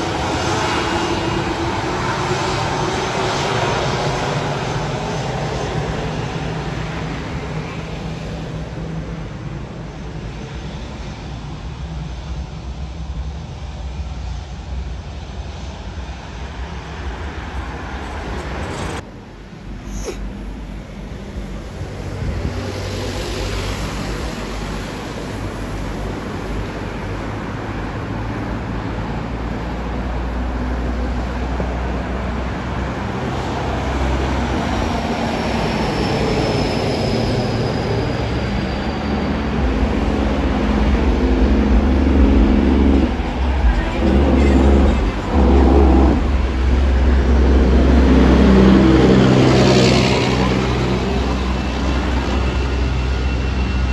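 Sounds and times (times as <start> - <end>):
aircraft engine rumble: 0.0 - 53.9
high whine sliding down: 26.5 - 53.9.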